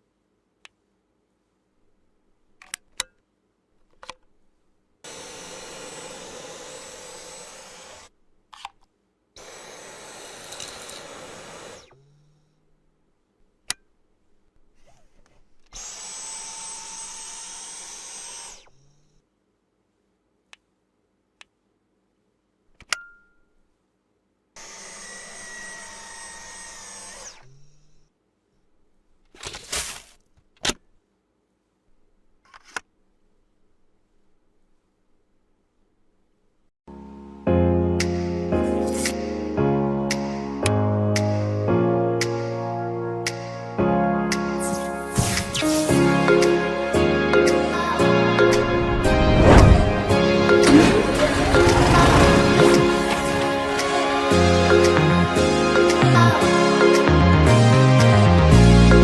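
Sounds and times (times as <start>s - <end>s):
vacuum cleaner rushing whine: 5.1s - 8.1s, 9.4s - 11.9s, 49.2s - 54.2s.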